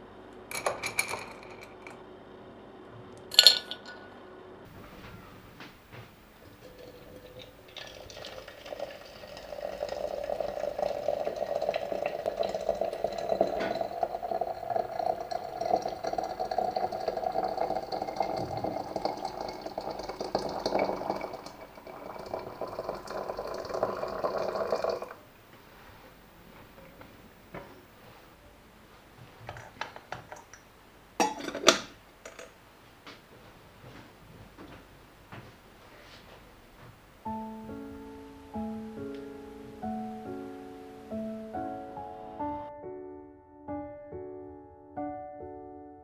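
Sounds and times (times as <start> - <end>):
liquid pouring: 4.7 - 28.2.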